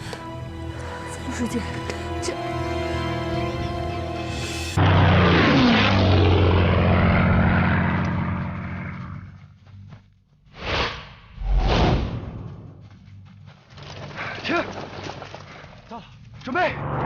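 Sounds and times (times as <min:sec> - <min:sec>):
propeller plane flying past: 0:03.6 - 0:09.6
short whooshes: 0:10.5 - 0:12.4.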